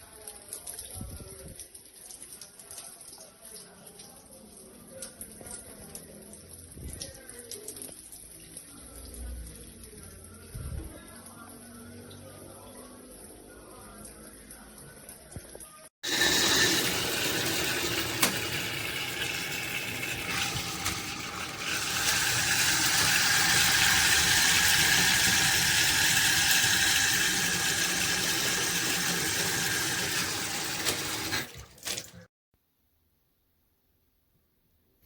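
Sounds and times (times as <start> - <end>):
water running from faucet: 16.0 - 32.3.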